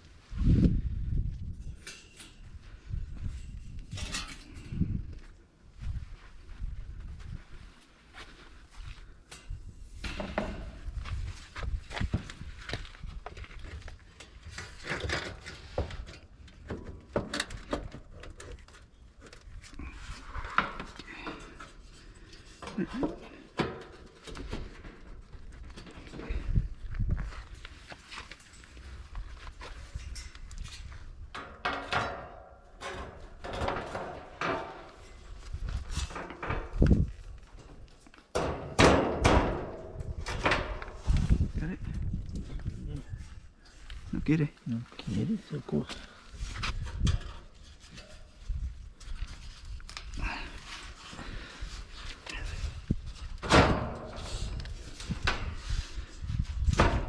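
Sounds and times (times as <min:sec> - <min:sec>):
hard parts knocking and clattering: 0:31.3 - 0:35.2, 0:35.8 - 0:41.0.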